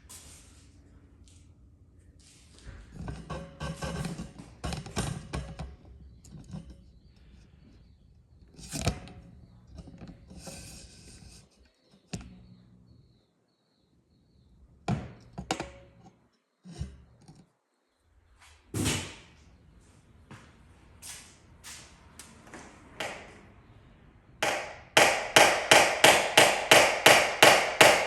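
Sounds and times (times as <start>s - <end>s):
sharp knocks and clicks: 14.8s - 16.2s, 23.0s - 23.3s, 24.4s - 28.0s.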